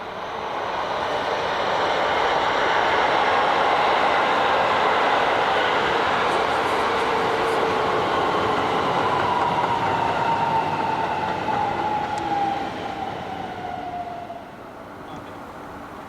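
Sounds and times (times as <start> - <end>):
train wheels rumbling on rails: 0.0 - 16.0
train motor whine: 4.4 - 16.0.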